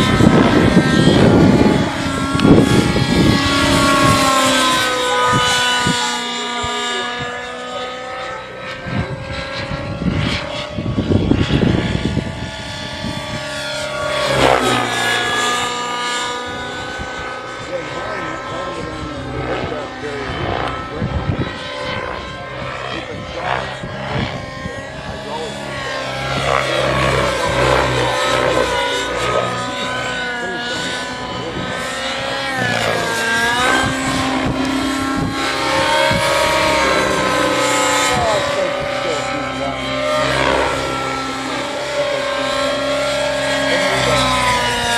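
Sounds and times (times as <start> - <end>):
gusty low rumble: 0.0 - 6.0, 8.8 - 42.4
model helicopter engine whine: 0.0 - 44.9.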